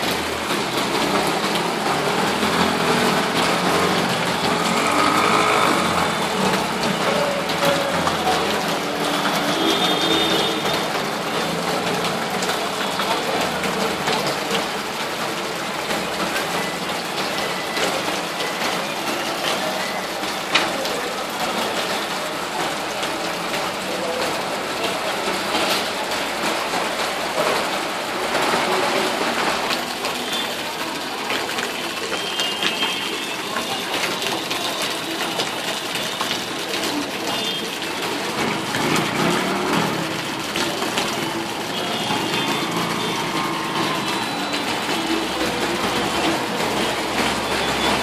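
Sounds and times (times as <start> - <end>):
scattered clicks and knocks: 0.0 - 48.0
vehicle engines running: 0.0 - 48.0.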